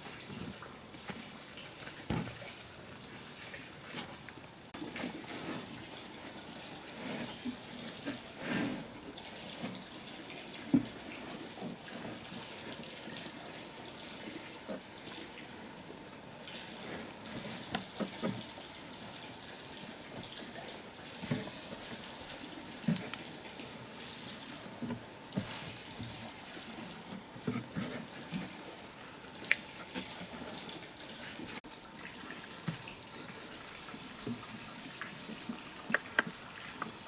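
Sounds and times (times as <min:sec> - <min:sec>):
water splashing and trickling: 0:04.8 - 0:15.8, 0:16.4 - 0:37.0.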